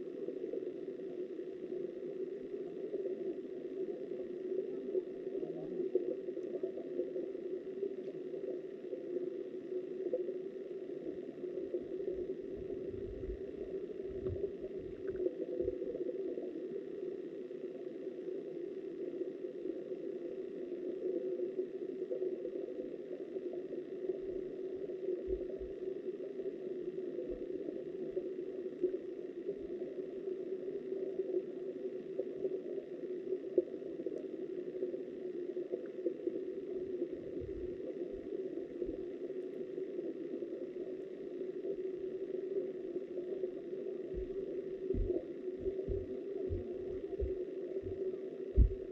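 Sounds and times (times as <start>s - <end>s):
muffled underwater river rushing: 0.0s - 48.9s
faint low thumps: 44.1s - 48.9s.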